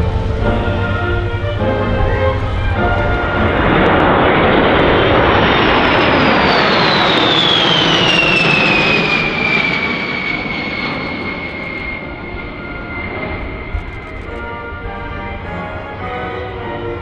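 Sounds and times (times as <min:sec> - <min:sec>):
jet bomber flyby: 0:00.0 - 0:17.0.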